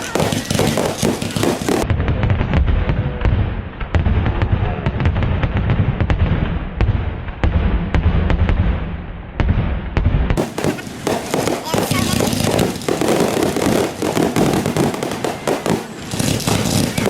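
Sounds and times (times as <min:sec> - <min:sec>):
fireworks cracking: 0:00.0 - 0:17.0
low rumble of booms: 0:00.7 - 0:11.4.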